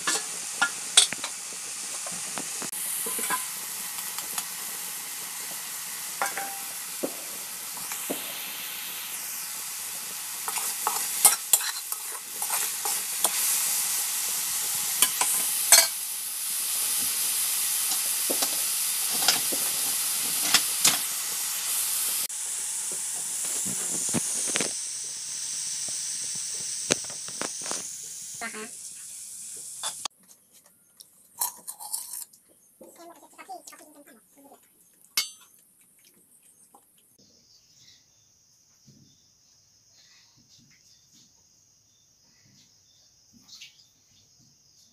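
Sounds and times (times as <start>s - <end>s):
mushrooms sizzling in hot oil: 0.0s - 30.1s.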